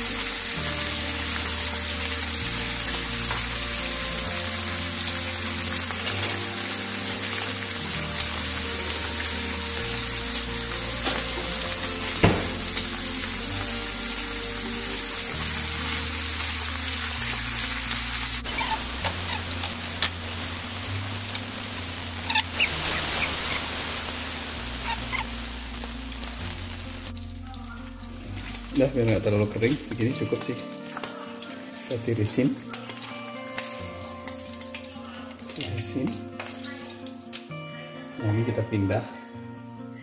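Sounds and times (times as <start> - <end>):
meat sizzling in a pan: 0.0 - 38.5
background music with bass: 0.0 - 40.0
sharp knock: 12.2 - 12.6.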